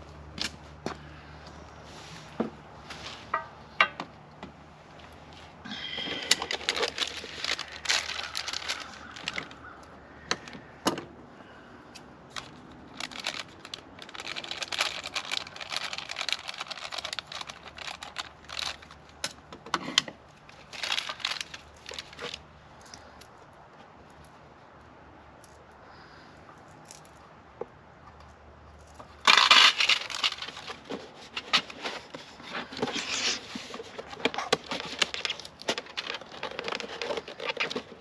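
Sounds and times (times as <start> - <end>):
packaging rustling and crinkling: 5.0 - 9.8, 12.3 - 22.4, 29.2 - 38.0.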